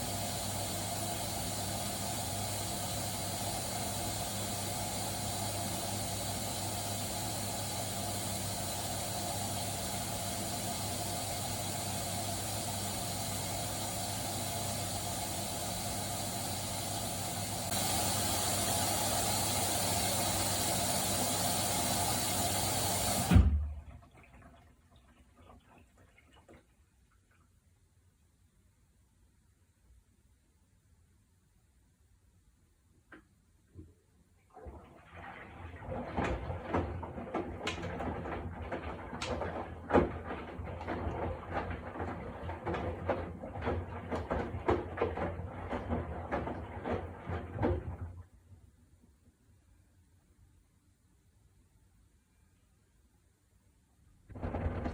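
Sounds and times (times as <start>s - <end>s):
washing machine hum: 0.0s - 28.0s, 33.0s - 50.4s, 54.1s - 54.9s
washing machine thump: 23.0s - 23.8s, 36.0s - 48.1s, 54.3s - 54.9s.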